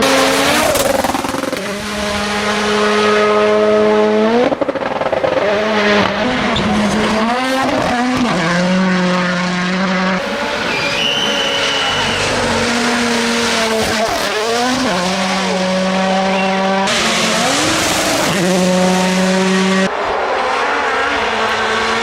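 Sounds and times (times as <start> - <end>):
rally car engine at high revs: 0.0 - 22.0.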